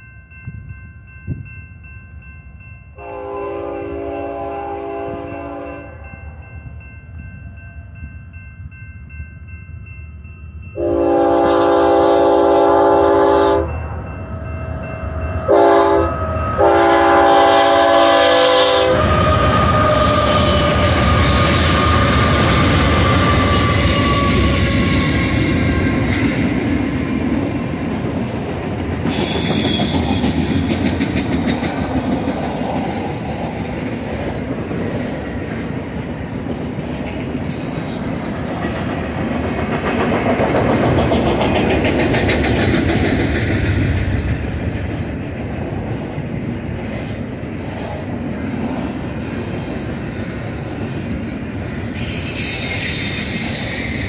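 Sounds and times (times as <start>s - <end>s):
locomotive air horn: 3.0s - 6.0s, 10.8s - 13.8s, 15.4s - 24.6s
train wheels rumbling and clacking: 10.8s - 54.0s.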